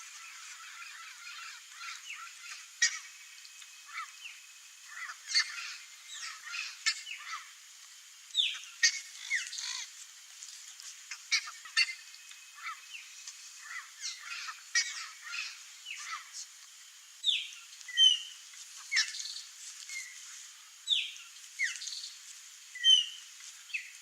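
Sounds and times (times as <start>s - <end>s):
parrots calling: 0.0s - 3.2s, 3.8s - 4.2s, 4.8s - 7.6s, 8.4s - 9.9s, 11.1s - 16.5s, 17.2s - 20.2s.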